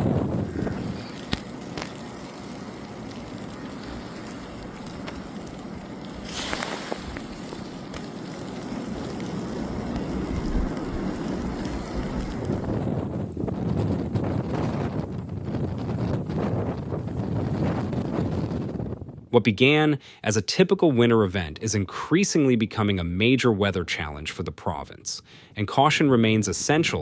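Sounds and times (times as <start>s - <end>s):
wind blowing over microphone: 0.0s - 1.8s, 3.5s - 19.3s.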